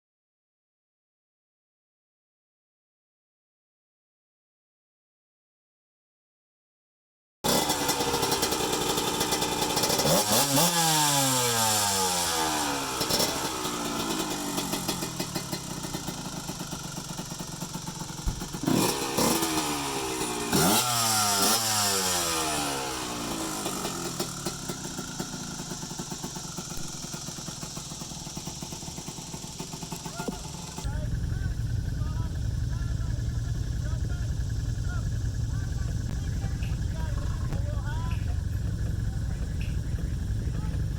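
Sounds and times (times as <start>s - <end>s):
engine revving in short blips: 7.5s - 17.1s, 18.0s - 25.6s.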